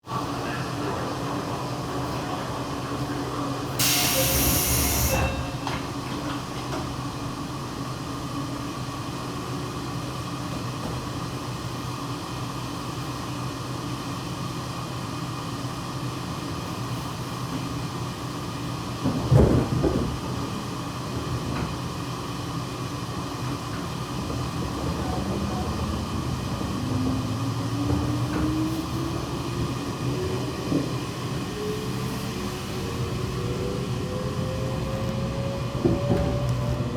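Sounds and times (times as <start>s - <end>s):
train running hum and rumble: 0.0s - 36.9s
air hiss: 3.8s - 5.4s.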